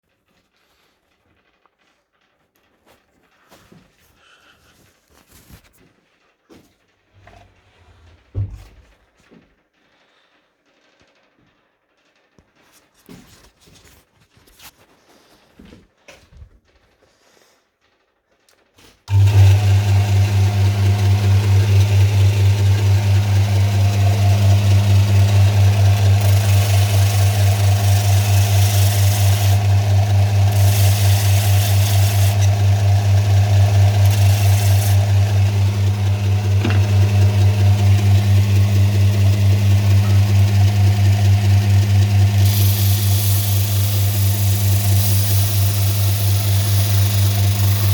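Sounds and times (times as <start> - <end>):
sanding machine motor humming: 19.1 - 47.9.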